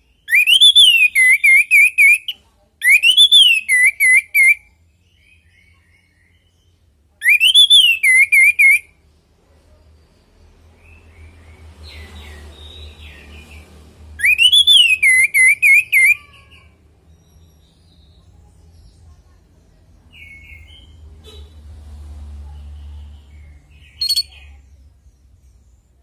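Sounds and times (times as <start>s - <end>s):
thrush singing whistled notes: 0.2s - 4.7s, 7.2s - 8.9s, 14.2s - 16.2s, 23.8s - 24.4s.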